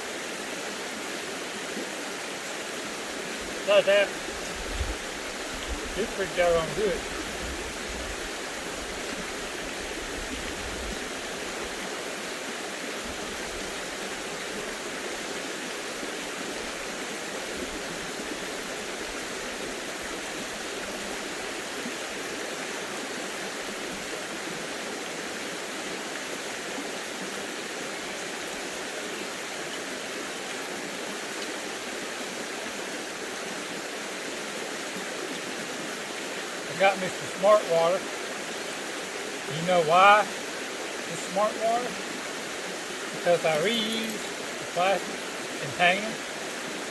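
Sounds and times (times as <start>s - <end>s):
stream water rushing: 0.0s - 46.9s.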